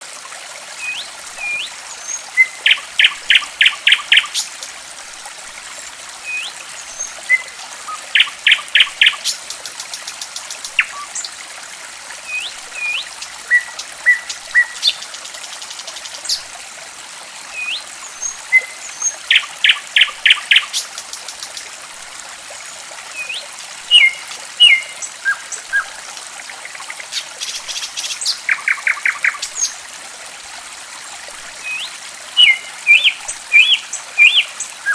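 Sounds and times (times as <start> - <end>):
water trickling: 0.0 - 34.9
songbird calls: 0.8 - 4.4, 6.2 - 11.3, 12.3 - 16.4, 17.5 - 21.6, 23.1 - 26.0, 27.0 - 29.8, 31.6 - 34.9.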